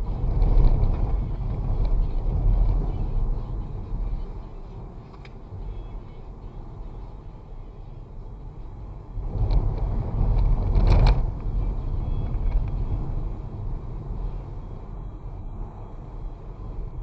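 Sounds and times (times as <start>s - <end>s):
wind on microphone: 0.0s - 3.3s, 9.2s - 14.1s
engine and road rumble: 0.0s - 17.0s.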